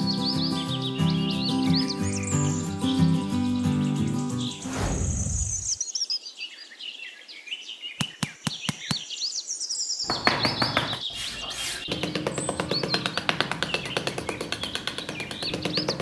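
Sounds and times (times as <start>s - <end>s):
birds chirping: 0.0s - 16.0s
sharp knocks: 10.1s - 11.2s, 11.8s - 16.0s
music with quick regular beat: 11.9s - 16.0s.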